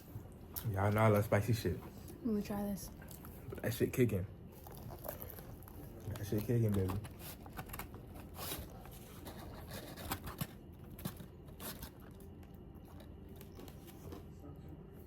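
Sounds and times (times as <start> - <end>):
faint steady low hum: 0.0 - 15.0
takeout packaging rustling: 4.6 - 14.3.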